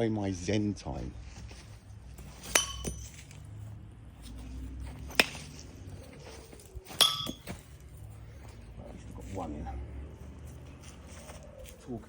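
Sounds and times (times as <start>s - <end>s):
knives striking wooden target: 2.4s - 3.2s, 5.1s - 5.5s, 6.9s - 7.6s
metallic ring of blade: 2.4s - 3.2s, 7.0s - 7.5s.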